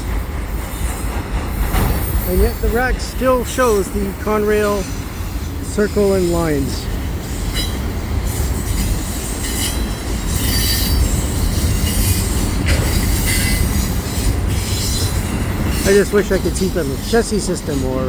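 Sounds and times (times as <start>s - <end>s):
train wheels rumbling on rail: 0.0s - 18.0s
high wheel squeal: 4.7s - 16.2s.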